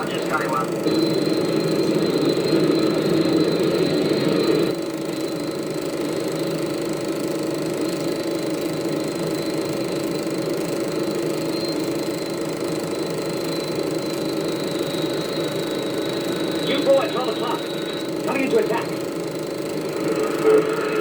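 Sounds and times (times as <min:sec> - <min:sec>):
thin high whine: 0:00.0 - 0:21.0
soundtrack rumble: 0:14.8 - 0:21.0.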